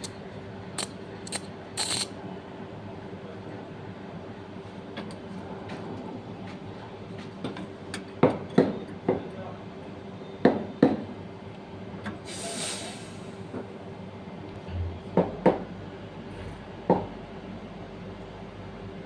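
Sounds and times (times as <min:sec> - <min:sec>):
brief hiss: 0:12.3 - 0:13.5
low rumble: 0:14.6 - 0:15.2.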